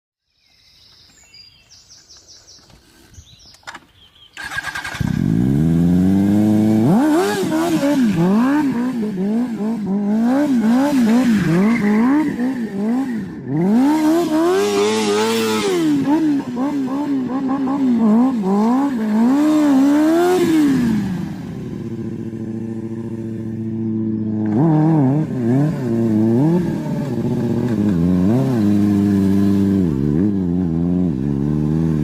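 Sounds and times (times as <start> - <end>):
motorcycle engine revving: 3.0 - 32.0.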